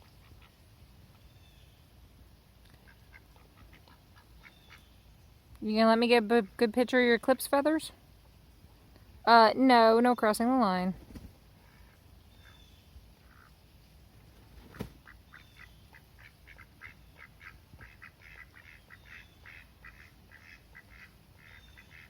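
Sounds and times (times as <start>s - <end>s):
ducks quacking softly: 0.0s - 1.3s, 2.7s - 5.0s, 11.6s - 13.6s, 14.7s - 22.0s.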